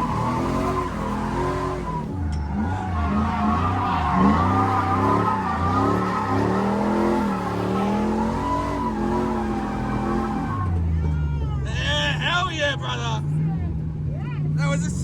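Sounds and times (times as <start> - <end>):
tyres squealing: 0.0 - 11.0
car engine revving: 0.0 - 11.1.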